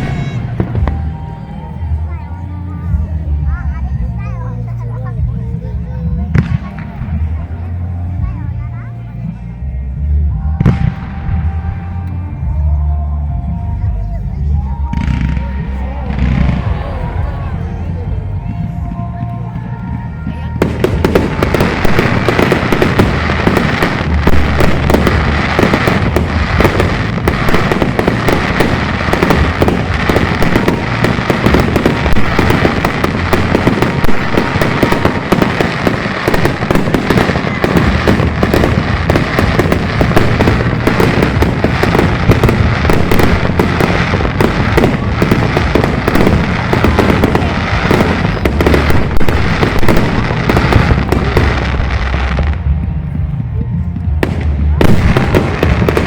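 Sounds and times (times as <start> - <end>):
firework shell bursts and crackles: 20.6 - 52.6, 54.2 - 56.0.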